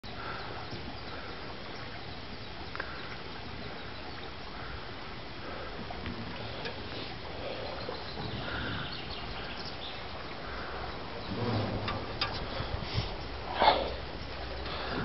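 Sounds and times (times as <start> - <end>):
birds chirping faintly: 0.0 - 15.0
steady low rumble: 5.5 - 15.0.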